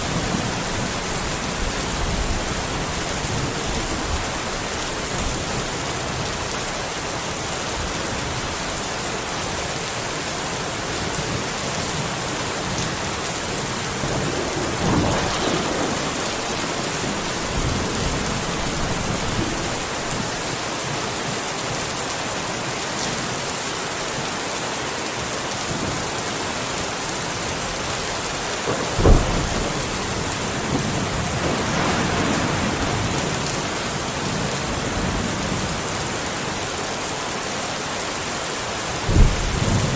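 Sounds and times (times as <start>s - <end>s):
steady rain falling: 0.0s - 39.9s
thunder rumbling: 12.5s - 20.6s, 27.7s - 35.8s, 39.0s - 39.9s.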